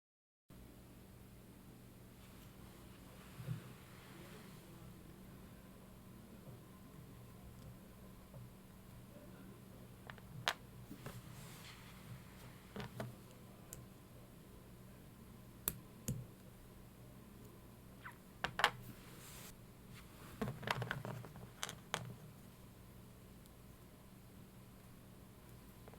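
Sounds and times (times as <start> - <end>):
faint low hum: 0.5 - 25.9.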